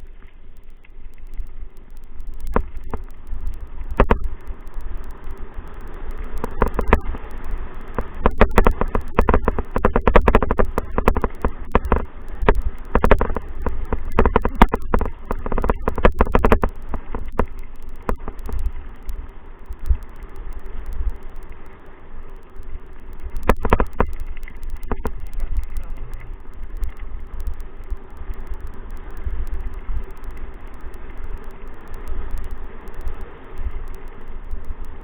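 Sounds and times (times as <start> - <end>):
wind rumbling on microphone: 0.0 - 35.0
sharp rattling clicks and knocks: 8.2 - 18.6.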